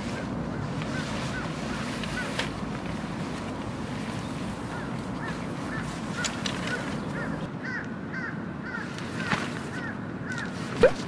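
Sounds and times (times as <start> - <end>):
pop-up tent rustling and clicking: 0.0 - 7.5, 9.0 - 9.8.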